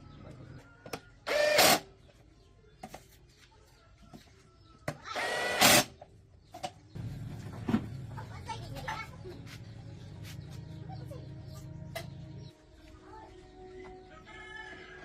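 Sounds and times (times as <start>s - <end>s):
power tool motor whirring: 1.3s - 1.8s.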